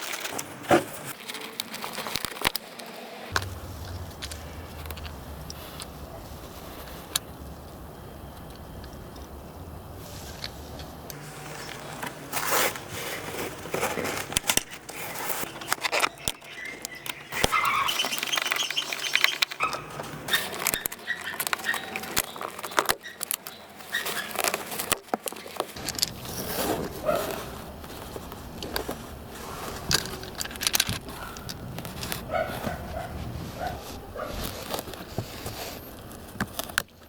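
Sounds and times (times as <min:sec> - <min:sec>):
rustling: 0:00.0 - 0:37.0
plastic parts clicking and knocking: 0:13.6 - 0:26.3, 0:29.7 - 0:32.8, 0:34.4 - 0:37.0.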